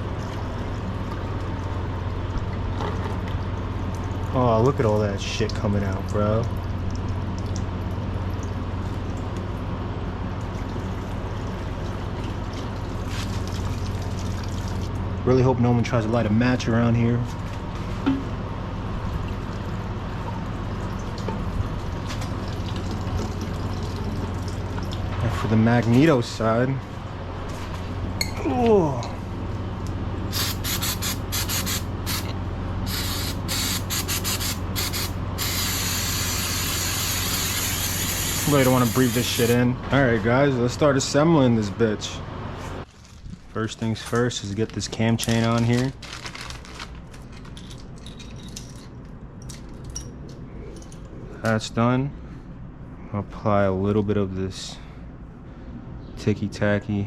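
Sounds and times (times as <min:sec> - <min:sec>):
steady low hum: 0:00.0 - 0:45.2, 0:46.7 - 0:57.0
gasoline pouring: 0:10.3 - 0:15.1, 0:20.5 - 0:25.6
liquid spraying from a bottle: 0:30.3 - 0:39.6.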